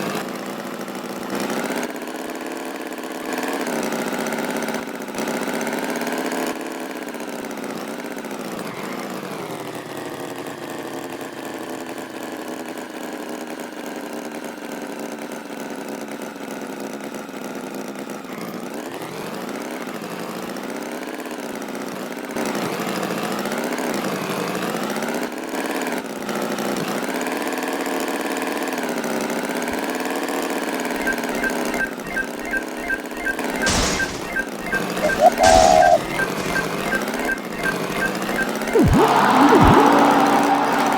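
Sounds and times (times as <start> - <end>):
short high beeps: 31.0 - 40.0.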